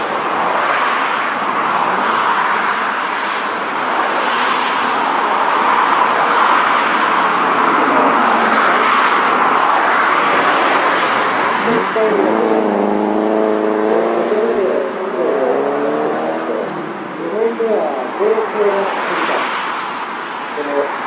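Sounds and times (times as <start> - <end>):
car engine: 0.0 - 21.0.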